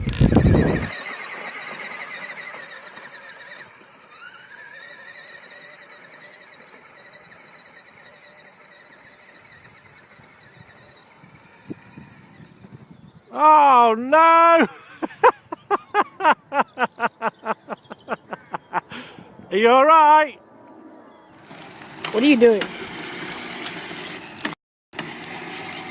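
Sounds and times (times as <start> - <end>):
distant motorcycle engine whining: 0.0 - 13.5, 15.2 - 19.5.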